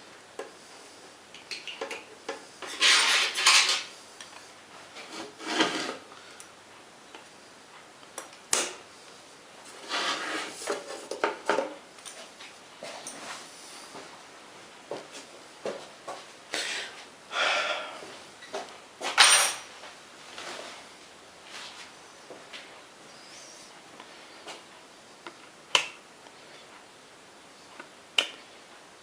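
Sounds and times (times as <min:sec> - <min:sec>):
metal tools clinking and scraping: 0:02.7 - 0:03.9, 0:19.1 - 0:19.7.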